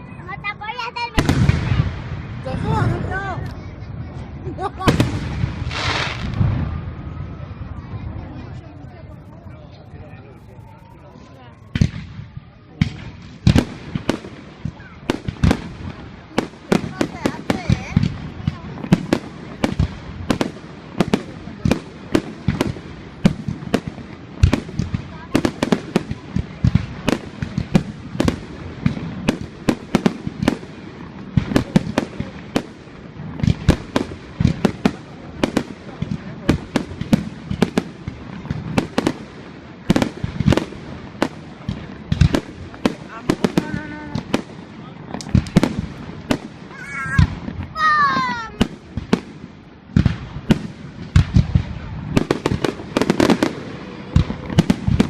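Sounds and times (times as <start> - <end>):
fireworks booming: 0.0 - 55.0
fireworks cracking and banging: 0.0 - 55.0.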